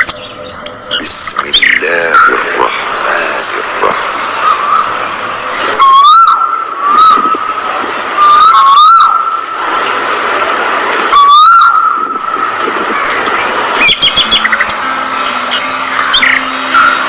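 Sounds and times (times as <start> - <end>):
budgerigars chattering: 0.0 - 5.0, 13.8 - 17.0
loud whistled bird calls: 4.4 - 7.5, 8.2 - 9.4, 11.1 - 12.3, 13.8 - 17.0.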